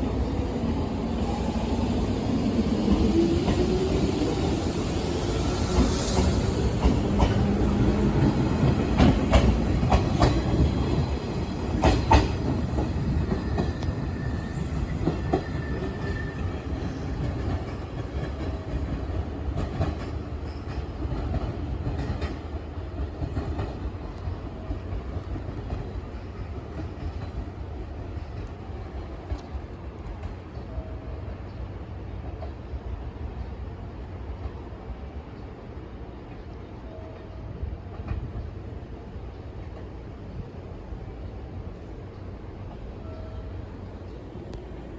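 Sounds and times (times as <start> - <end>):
train wheels clacking over rail joints: 5.7 - 11.1, 11.7 - 13.9.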